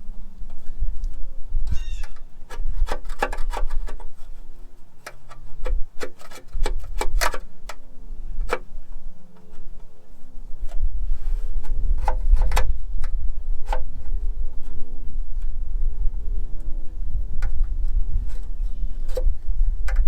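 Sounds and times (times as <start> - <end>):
wind on microphone: 0.0 - 4.6, 5.3 - 20.0
hand scraper scraping engine parts: 1.7 - 7.8, 10.6 - 14.7, 17.4 - 20.0.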